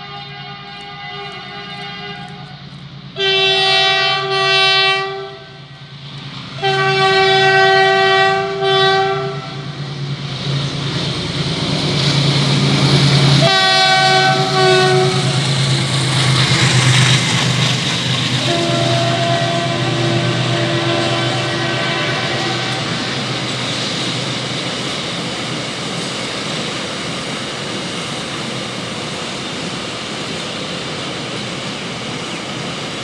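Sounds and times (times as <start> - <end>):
train horn blasts: 0.0 - 2.6, 3.2 - 5.9, 6.6 - 9.7, 13.3 - 15.5, 18.4 - 23.4
train rumbling past: 0.0 - 33.0.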